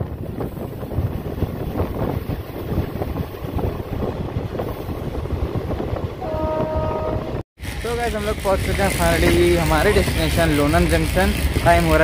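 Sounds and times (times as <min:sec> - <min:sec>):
train rumble: 0:00.0 - 0:12.0
wind buffeting microphone: 0:00.0 - 0:12.0
wheels clattering on rails: 0:07.6 - 0:12.0.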